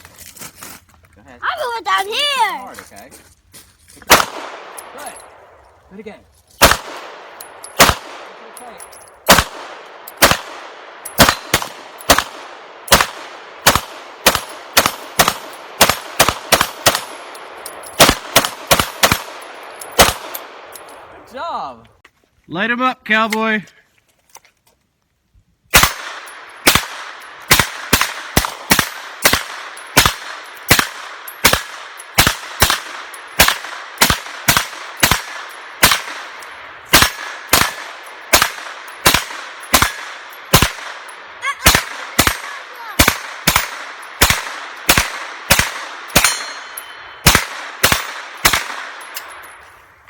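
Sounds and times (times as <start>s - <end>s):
rapid gunshots: 4.1s - 4.7s, 6.6s - 7.2s, 7.8s - 8.5s, 9.3s - 17.3s, 18.0s - 19.4s, 20.0s - 20.6s, 25.7s - 46.6s, 47.2s - 49.0s.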